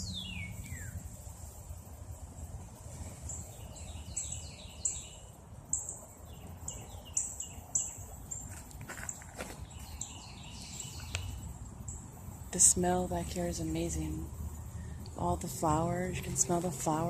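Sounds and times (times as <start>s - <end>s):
birds whistling calls: 0.0s - 1.1s, 3.3s - 12.0s
low background rumble: 9.6s - 17.0s.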